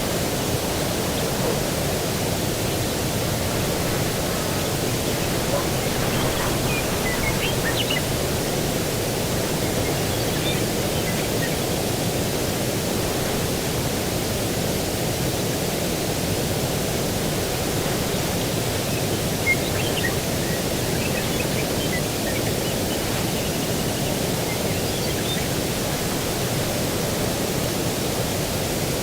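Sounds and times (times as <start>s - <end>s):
distant ocean surf: 0.0s - 14.7s
breeze rushing: 2.6s - 13.7s
faint bird chirps: 4.9s - 8.6s, 9.4s - 11.7s, 18.8s - 25.6s.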